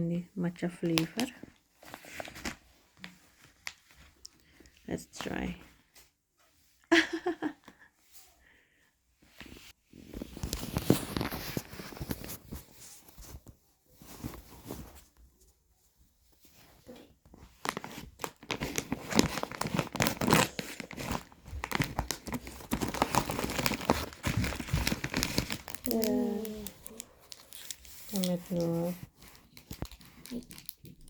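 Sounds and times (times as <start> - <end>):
plastic packaging tearing and crinkling: 17.5 - 31.0.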